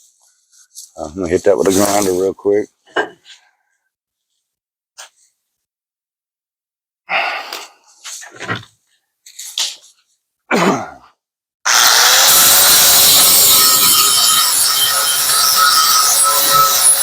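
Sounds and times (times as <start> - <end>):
power grinder on sheet metal: 11.7 - 17.0.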